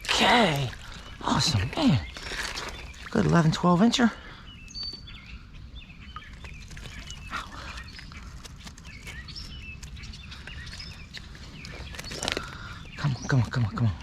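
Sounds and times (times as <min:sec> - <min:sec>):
stream water rushing: 0:00.0 - 0:04.0
birds chirping: 0:00.0 - 0:14.0.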